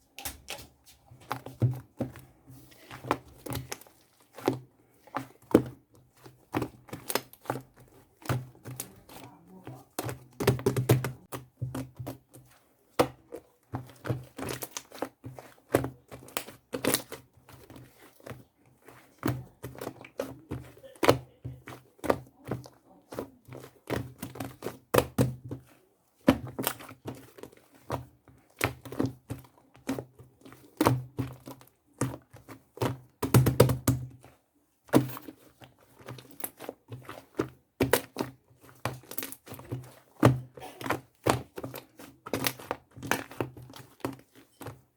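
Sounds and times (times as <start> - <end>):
crinkling: 34.1 - 44.9.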